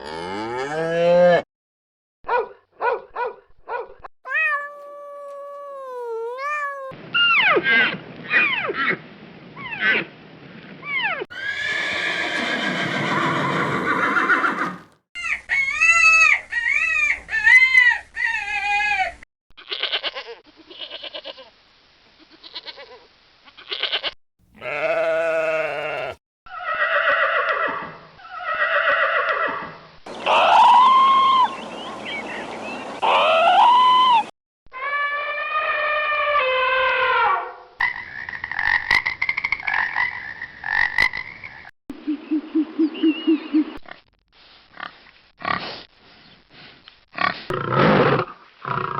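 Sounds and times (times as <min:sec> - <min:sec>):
bleat-like calls: 0:22.2 - 0:26.8
farm animal calls: 0:23.7 - 0:26.8.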